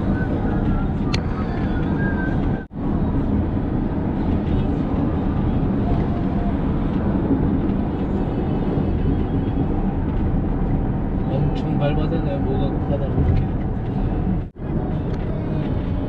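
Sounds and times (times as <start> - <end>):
road and tyre noise inside car: 0.0 - 16.0.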